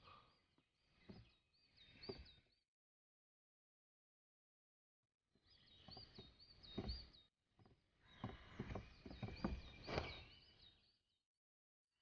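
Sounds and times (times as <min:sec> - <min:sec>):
birds chirping: 0:00.0 - 0:02.6, 0:05.4 - 0:11.2.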